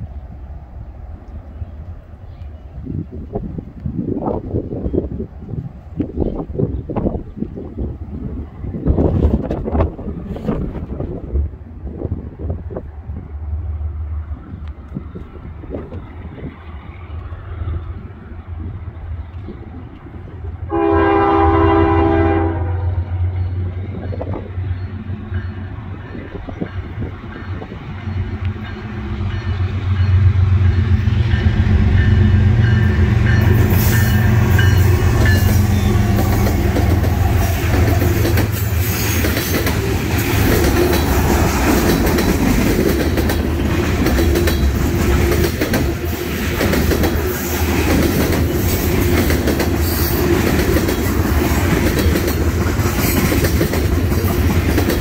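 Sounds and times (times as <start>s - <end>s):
locomotive engine rumble: 0.0s - 55.0s
locomotive air horn: 20.7s - 23.0s.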